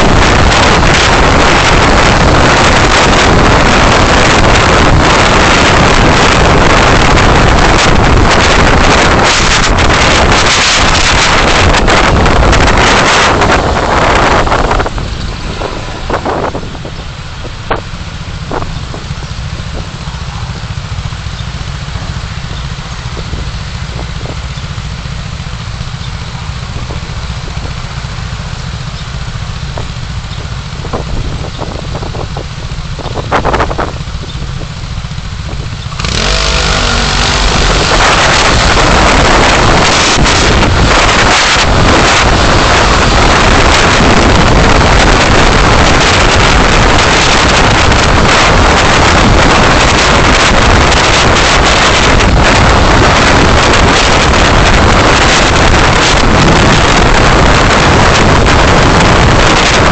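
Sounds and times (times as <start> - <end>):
car engine rumble: 0.0 - 59.9
loud rushing noise: 0.0 - 59.9
road noise: 0.0 - 59.9.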